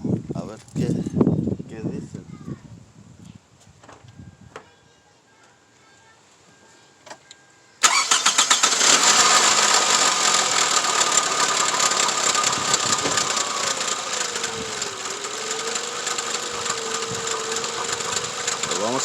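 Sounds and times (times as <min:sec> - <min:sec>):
car engine fast idle: 0:07.8 - 0:19.0
car starter cranking: 0:07.8 - 0:19.0.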